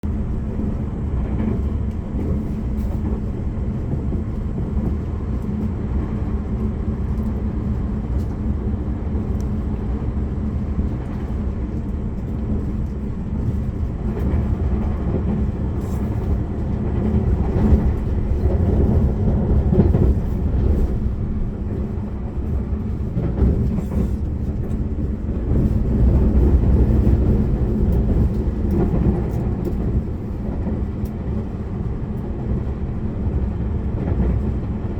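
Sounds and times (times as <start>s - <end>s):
train interior low rumble: 0.0s - 34.9s.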